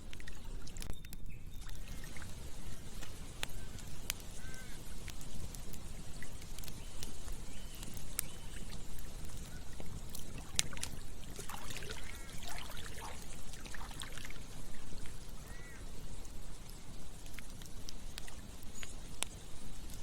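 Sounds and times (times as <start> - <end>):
campfire crackling: 0.0 - 20.0
river water flowing: 9.2 - 15.4.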